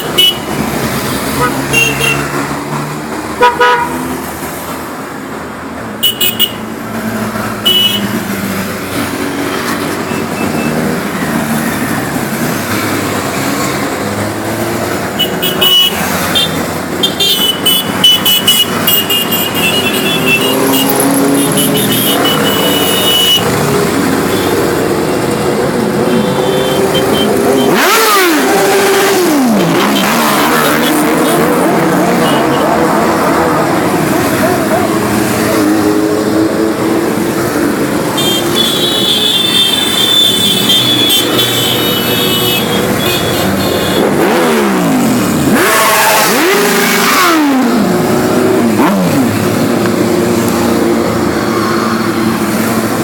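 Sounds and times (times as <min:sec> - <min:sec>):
motorcycle engines riding by: 0:06.6 - 0:53.0
motorcycle engine revving: 0:17.6 - 0:38.6, 0:39.5 - 0:53.0.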